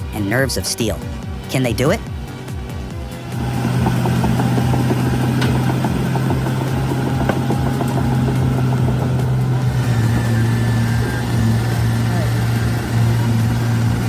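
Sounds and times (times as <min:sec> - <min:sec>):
diesel machinery engine running: 0:00.0 - 0:14.0.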